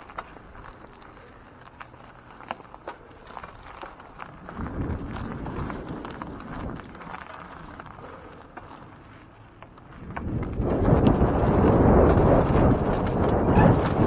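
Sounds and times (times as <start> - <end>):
wind rumbling on microphone: 3.2 - 9.0, 9.8 - 14.0.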